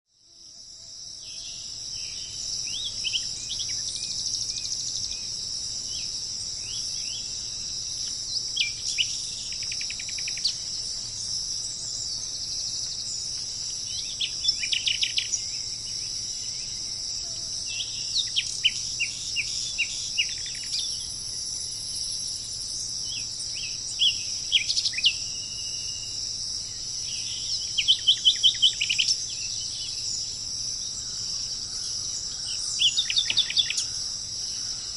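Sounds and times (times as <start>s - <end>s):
high-pitched insect drone: 0.2s - 34.9s
bird calling: 8.0s - 15.8s, 27.1s - 30.2s, 30.9s - 34.9s.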